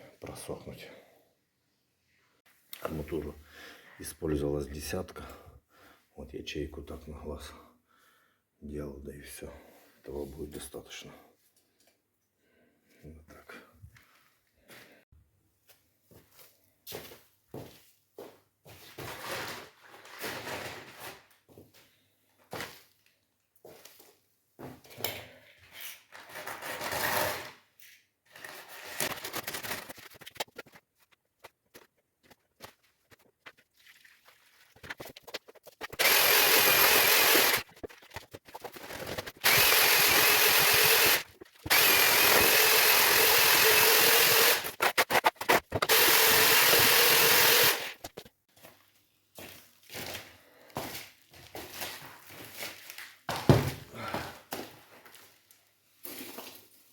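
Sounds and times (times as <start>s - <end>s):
electric power tool running: 36.0s - 37.6s, 39.4s - 44.7s, 45.8s - 48.0s
knocks and scraping: 44.6s - 45.9s.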